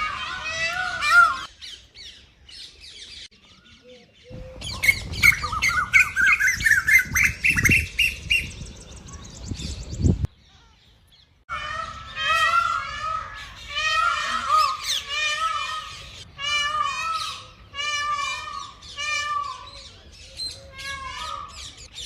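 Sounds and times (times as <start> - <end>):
birds chirping and squawking: 0.0 - 22.0.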